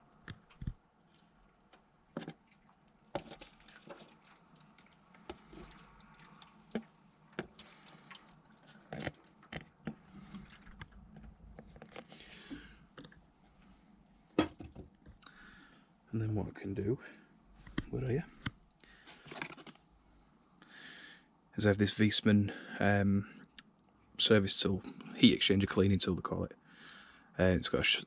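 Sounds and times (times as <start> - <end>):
water dripping and splashing: 1.2 - 11.0.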